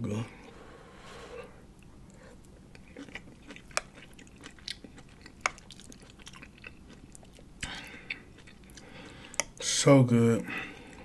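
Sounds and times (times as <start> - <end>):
chewing food: 1.8 - 9.7.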